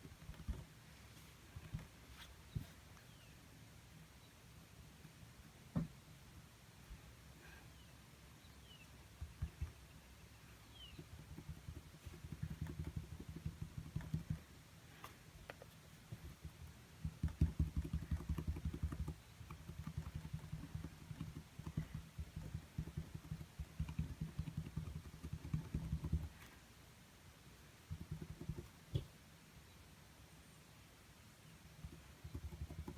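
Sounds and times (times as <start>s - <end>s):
brush dabbing paint on canvas: 10.7s - 26.6s, 27.9s - 29.1s, 31.8s - 32.9s.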